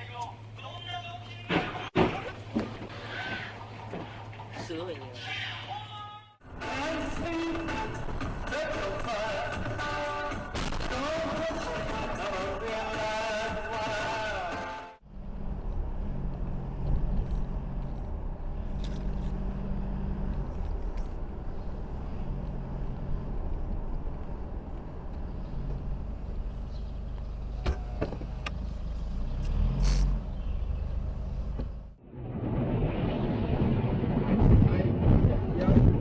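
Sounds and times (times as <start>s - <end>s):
car engine and road noise: 14.6s - 34.5s.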